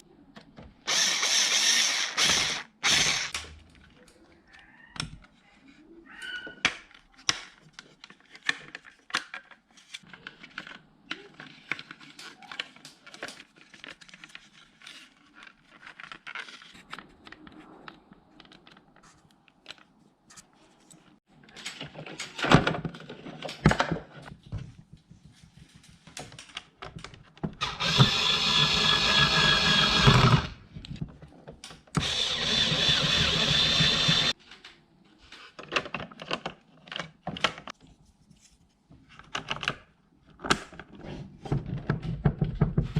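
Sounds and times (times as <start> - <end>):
small electric motor whining: 0.9 - 3.3, 27.6 - 30.6, 32.0 - 34.4.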